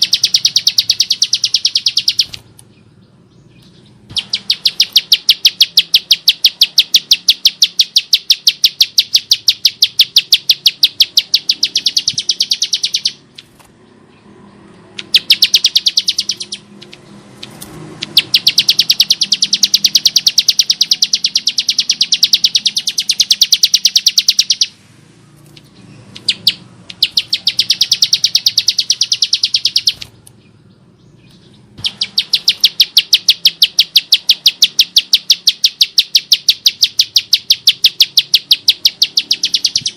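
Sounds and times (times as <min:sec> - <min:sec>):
bird harsh rapid call: 0:04.1 - 0:13.4, 0:15.0 - 0:24.8, 0:26.0 - 0:30.1, 0:31.8 - 0:39.9.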